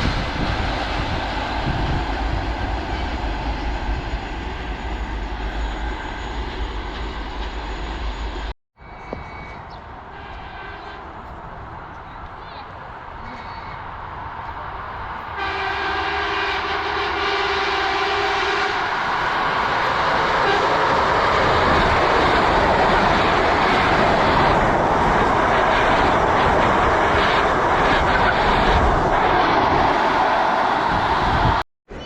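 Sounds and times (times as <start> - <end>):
train wheels rushing on rail: 0.0 - 31.6
train horn two-note chord: 15.4 - 18.8.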